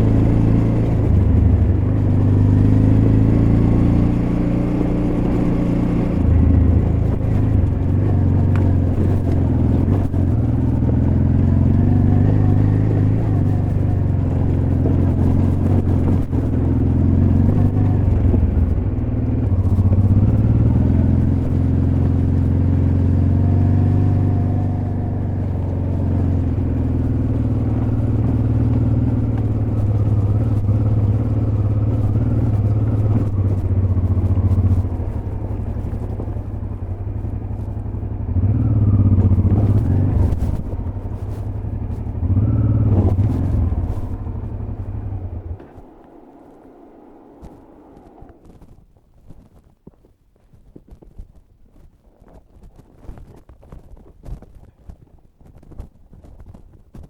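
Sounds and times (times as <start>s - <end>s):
motorcycle engine running: 0.0s - 50.0s
motorcycle knocking over rough ground: 45.5s - 57.0s.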